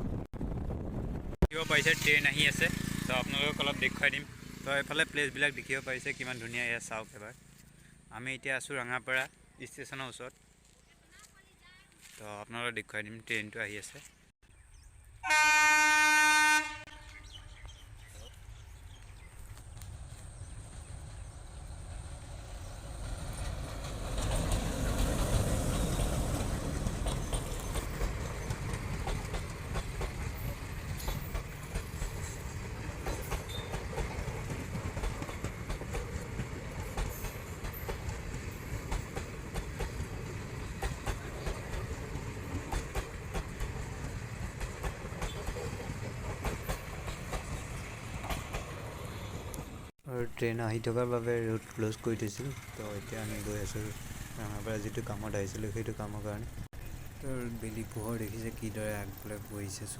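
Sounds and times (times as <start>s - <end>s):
train wheels clattering on rails: 22.5s - 49.7s.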